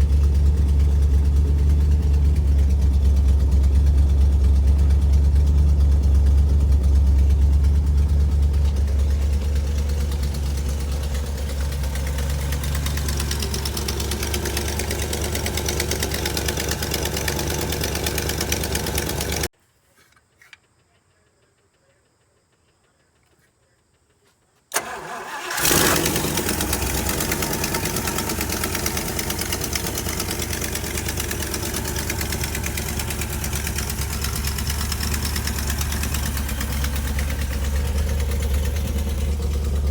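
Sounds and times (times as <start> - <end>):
car engine idling: 0.0 - 19.5, 24.7 - 39.9
engine starting: 24.7 - 27.8.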